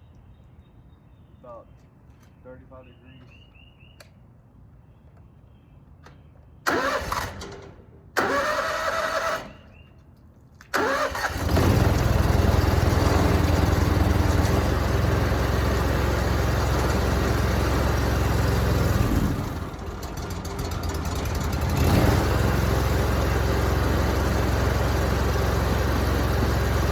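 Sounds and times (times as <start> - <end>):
gasoline engine starting and running: 6.6 - 9.8, 10.6 - 26.9.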